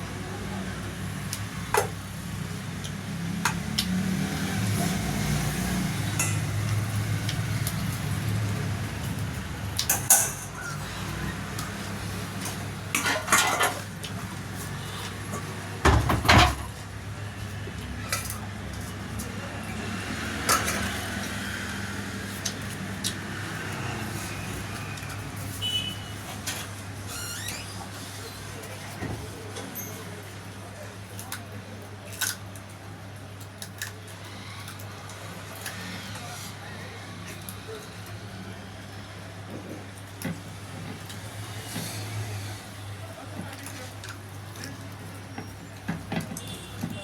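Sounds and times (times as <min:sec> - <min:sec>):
dishes and utensils clinking: 0:06.2 - 0:06.6, 0:09.8 - 0:10.8, 0:12.9 - 0:13.9.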